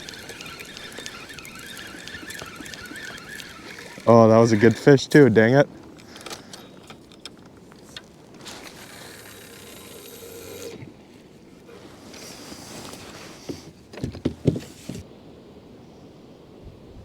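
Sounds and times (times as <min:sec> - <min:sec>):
gear rustling: 0:00.0 - 0:15.0.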